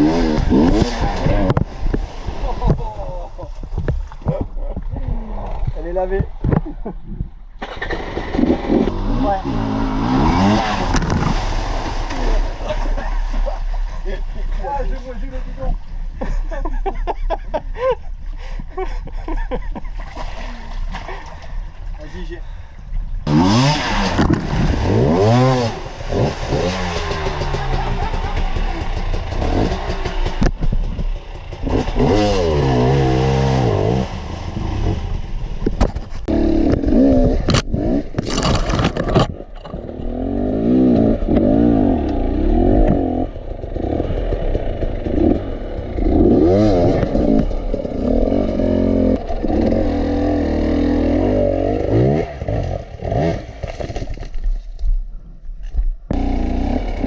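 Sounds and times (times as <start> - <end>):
motorcycle engine revving: 0.0 - 3.2, 7.6 - 14.6, 23.2 - 54.4, 56.1 - 57.0
clattering and scraping: 35.6 - 40.1.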